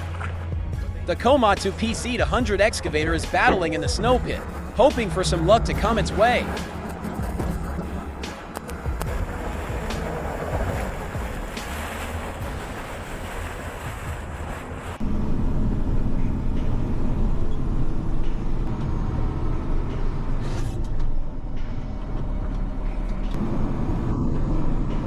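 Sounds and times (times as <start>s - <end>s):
heavy diesel engine under load: 1.3s - 25.0s
steady rushing noise: 1.7s - 17.4s.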